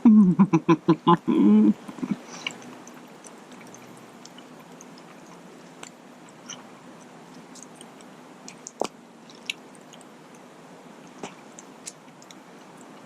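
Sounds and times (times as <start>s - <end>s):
man making appreciative mm sounds: 0.0s - 2.2s
chewing: 2.2s - 13.0s.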